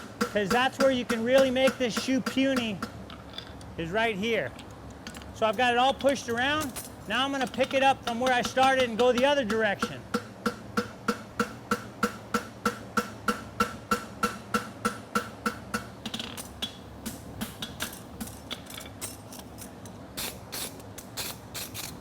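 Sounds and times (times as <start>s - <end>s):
hammer on horseshoe and anvil: 0.0s - 3.1s, 5.4s - 18.4s.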